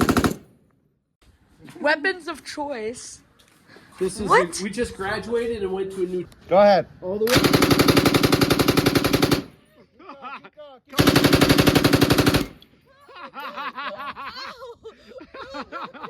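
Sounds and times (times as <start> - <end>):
automatic gunfire bursts: 0.0 - 0.5, 7.3 - 9.6, 11.0 - 12.6.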